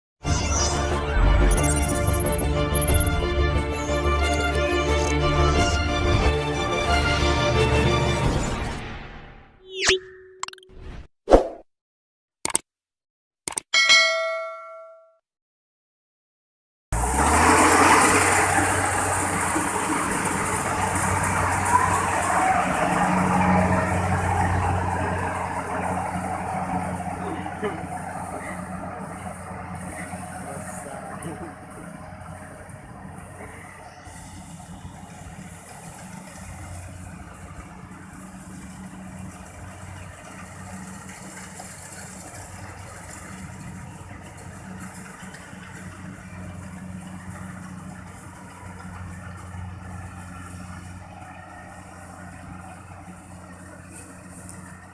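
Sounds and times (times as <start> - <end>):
combine harvester engine running: 0.2 - 9.4, 17.0 - 54.9
bell-like chime: 13.8 - 15.2.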